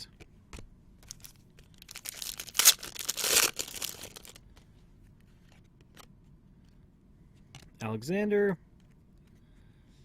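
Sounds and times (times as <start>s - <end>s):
wrapper tearing and crinkling: 1.1s - 4.4s.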